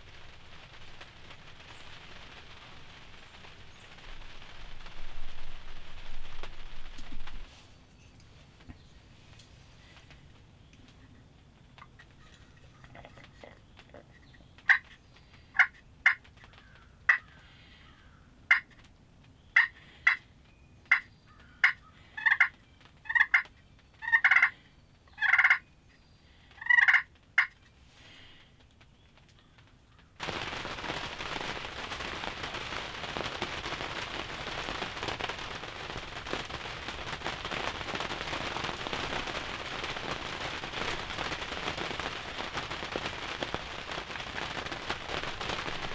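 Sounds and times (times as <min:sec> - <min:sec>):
steady rain: 0:00.0 - 0:45.9
turkey clucking: 0:15.6 - 0:16.2, 0:18.5 - 0:18.8, 0:19.6 - 0:20.2, 0:20.9 - 0:24.5, 0:25.2 - 0:25.6, 0:26.6 - 0:27.6.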